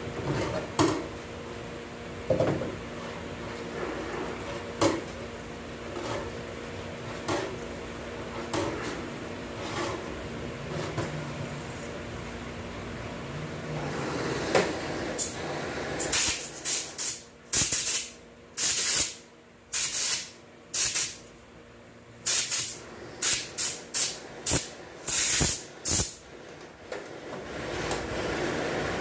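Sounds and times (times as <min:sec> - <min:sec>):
compressed air blow gun hissing: 0:22.2 - 0:26.2.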